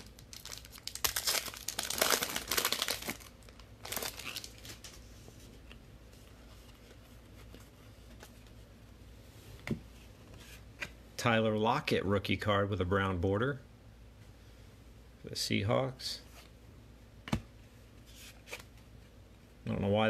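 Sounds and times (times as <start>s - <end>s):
wrapper tearing and crinkling: 0.0s - 4.9s
cards handled: 18.1s - 18.8s.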